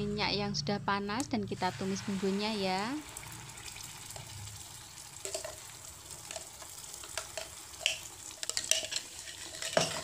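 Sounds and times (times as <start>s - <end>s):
spice paste sizzling in oil: 1.5s - 10.0s
oil popping and spattering: 3.1s - 10.0s.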